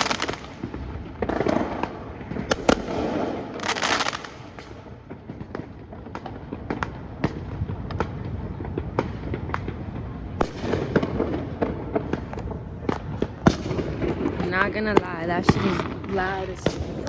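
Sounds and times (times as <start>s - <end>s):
fireworks bangs and pops: 0.0s - 17.0s
low rumble of distant blasts: 0.0s - 17.0s.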